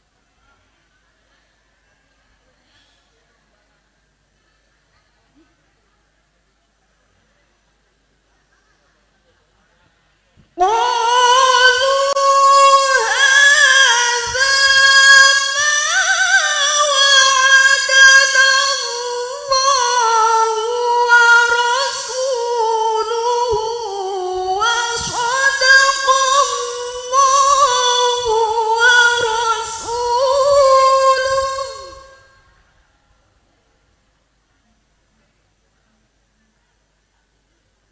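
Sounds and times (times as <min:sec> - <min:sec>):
woman reciting melodically: 0:10.5 - 0:32.6.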